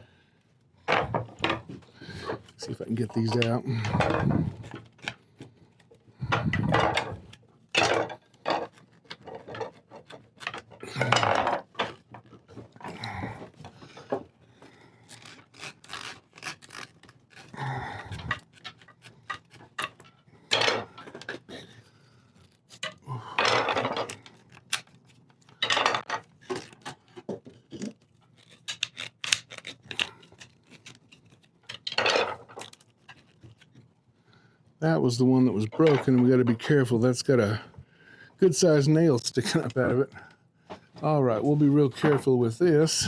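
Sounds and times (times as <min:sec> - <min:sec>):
wood scraping on wood: 0:00.8 - 0:33.9.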